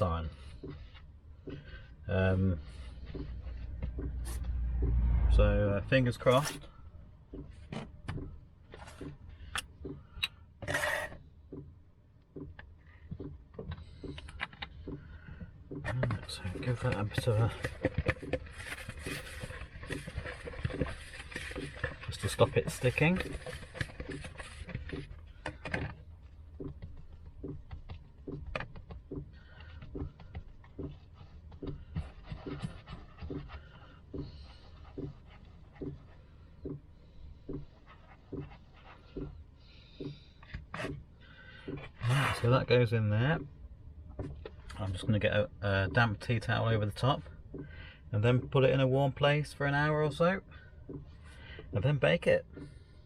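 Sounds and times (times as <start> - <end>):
hands squishing bread dough: 0.0 - 5.3, 12.4 - 43.4
short scrape: 10.6 - 11.2.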